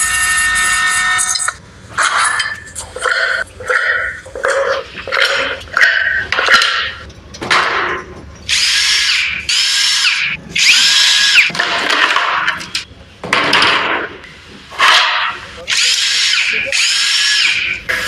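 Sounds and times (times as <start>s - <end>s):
power tool motor in bursts: 8.5s - 11.5s, 15.7s - 18.0s.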